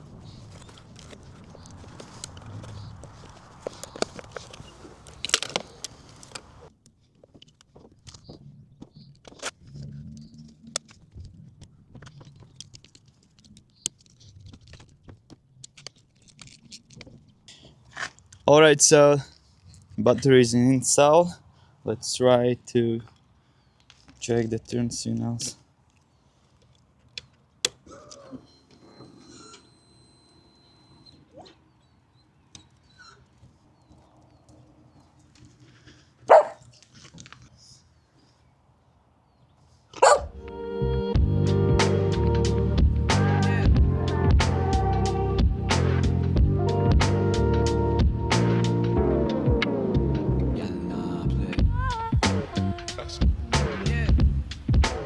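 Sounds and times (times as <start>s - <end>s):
dog barking: 36.3s - 36.6s, 40.0s - 40.4s.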